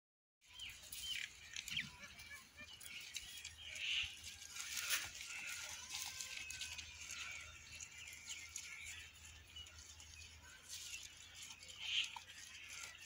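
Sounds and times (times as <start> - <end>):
small birds chirping: 0.4 - 13.0
leaf rustling: 2.9 - 13.0.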